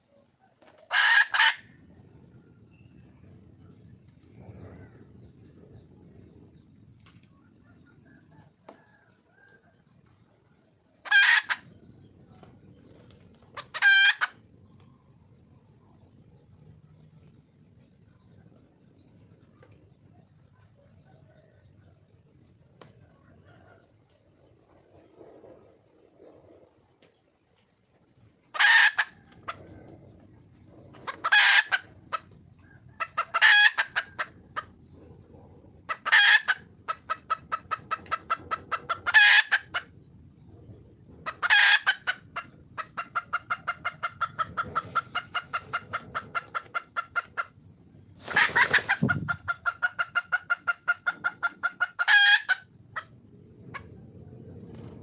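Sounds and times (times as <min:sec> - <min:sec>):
hen cackling: 0:00.6 - 0:01.8, 0:11.0 - 0:11.7, 0:13.5 - 0:14.4, 0:28.5 - 0:29.8, 0:31.0 - 0:34.7, 0:35.9 - 0:39.9, 0:41.2 - 0:47.6, 0:48.2 - 0:53.1.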